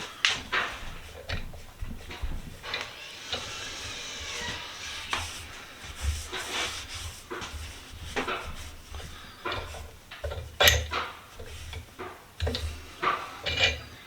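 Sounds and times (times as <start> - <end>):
metal vise parts clinking: 13.4 - 13.9.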